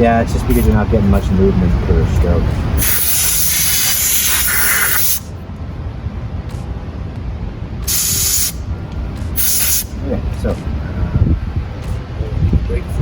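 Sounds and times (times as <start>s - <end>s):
steady low rumble: 0.0s - 13.0s
hissing spray: 2.8s - 5.3s, 7.8s - 8.6s, 9.4s - 10.0s.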